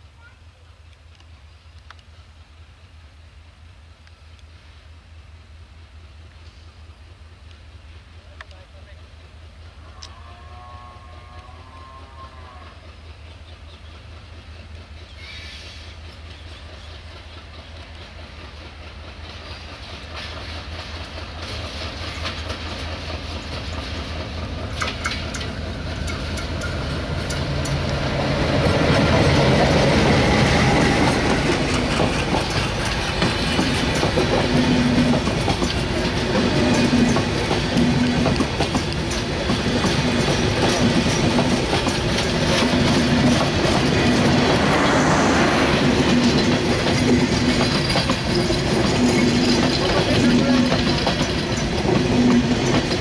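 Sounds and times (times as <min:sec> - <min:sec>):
diesel locomotive engine rumble: 0:00.0 - 0:53.0
train wheels clickety-clack: 0:12.4 - 0:53.0.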